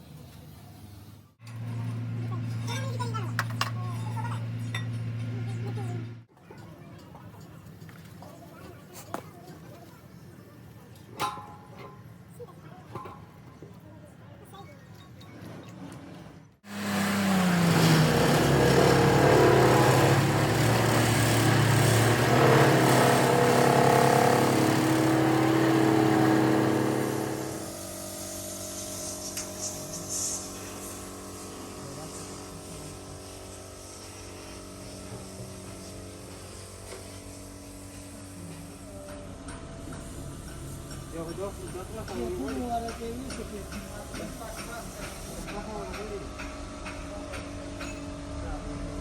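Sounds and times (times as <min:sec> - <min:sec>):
diesel engine running: 0:16.7 - 0:49.0.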